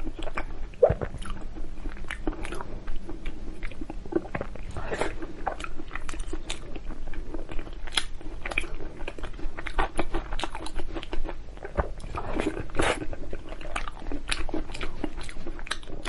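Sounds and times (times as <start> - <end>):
wet chewing clicks and smacks: 5.4 - 16.0.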